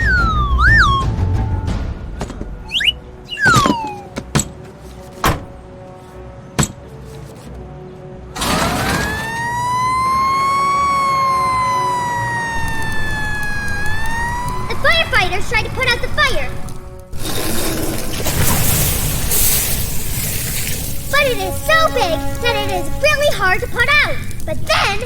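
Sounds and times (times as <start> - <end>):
falling whistle-like glides: 0.0 - 1.2, 2.6 - 4.2
siren wailing: 0.0 - 1.4, 2.7 - 4.2, 8.4 - 15.5.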